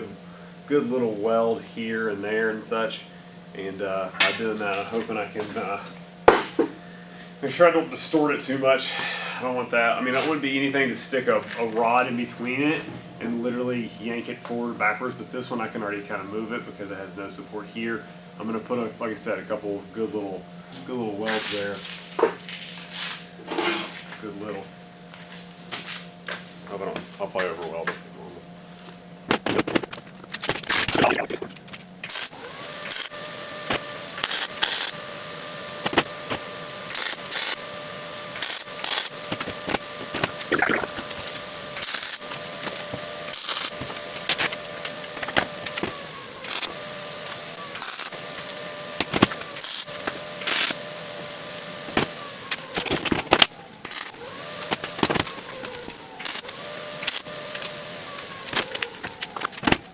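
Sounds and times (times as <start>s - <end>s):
steady hum: 28.4s - 50.8s
welding arc crackle: 32.0s - 33.1s, 34.2s - 35.0s, 35.8s - 37.6s, 38.3s - 46.7s, 47.7s - 50.8s, 53.4s - 54.2s, 54.8s - 57.7s.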